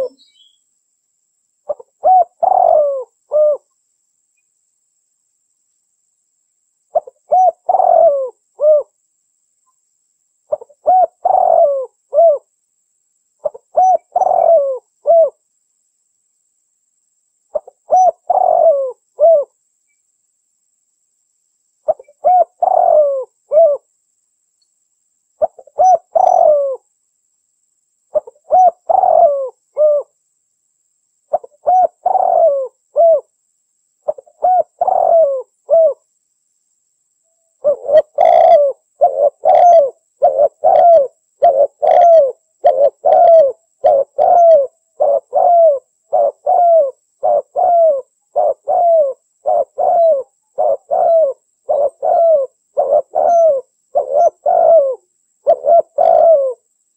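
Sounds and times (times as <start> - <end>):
dove cooing: 0.0 - 0.3, 1.7 - 3.6, 6.9 - 9.0, 10.5 - 12.5, 13.4 - 15.4, 17.5 - 19.6, 21.9 - 23.9, 25.4 - 26.8, 28.1 - 30.2, 31.3 - 33.3, 34.0 - 36.0, 37.6 - 56.6.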